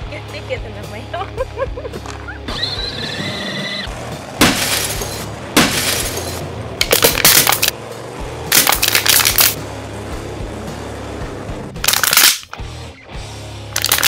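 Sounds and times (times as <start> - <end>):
background music: 0.0 - 14.0
glass smashing: 4.4 - 7.7.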